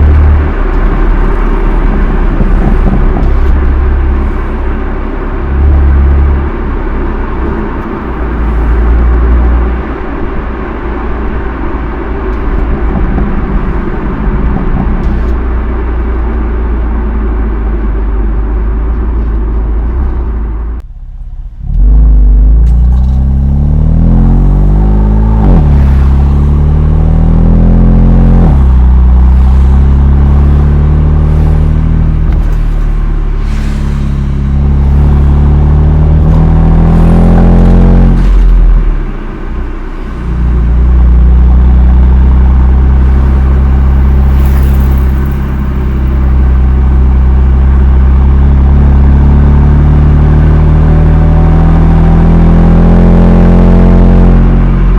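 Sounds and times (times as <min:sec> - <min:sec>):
car engine exhaust drone: 0:00.0 - 0:54.9
engine revving through gear shifts: 0:21.6 - 0:54.9.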